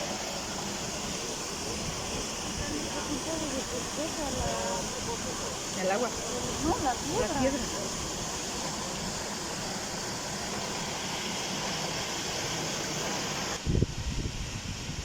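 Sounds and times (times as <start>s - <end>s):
waterfall rushing: 0.0s - 13.7s
wind buffeting microphone: 13.6s - 15.0s.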